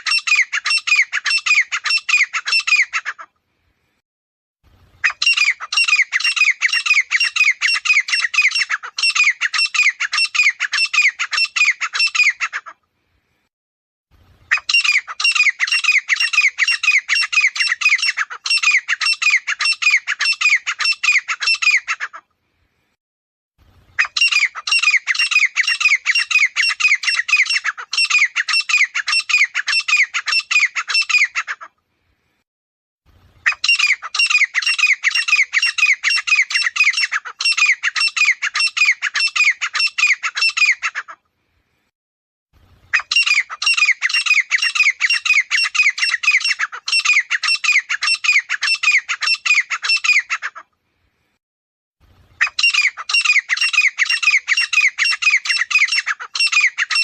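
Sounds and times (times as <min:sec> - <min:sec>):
francolin calling: 0:14.5 - 0:22.0, 0:52.4 - 0:57.0.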